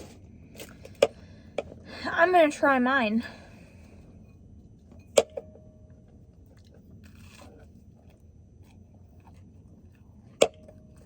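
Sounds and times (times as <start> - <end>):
crunchy bite of sandwich: 6.5 - 10.2.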